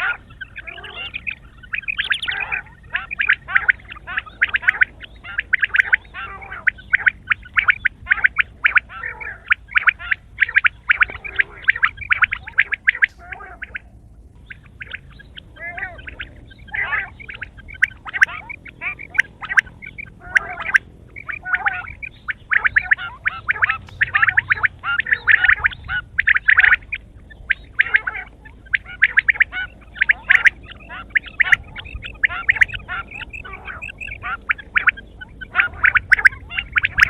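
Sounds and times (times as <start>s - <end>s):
quail calling in rattling bursts: 0.0s - 37.0s.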